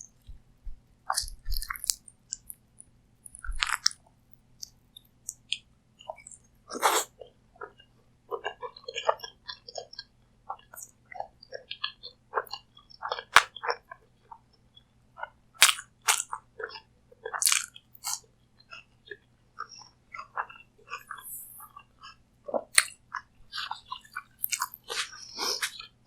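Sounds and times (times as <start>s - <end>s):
crunchy chewing and bites: 1.1s - 2.5s, 3.4s - 4.0s, 15.6s - 16.3s, 17.4s - 18.2s, 23.6s - 25.9s.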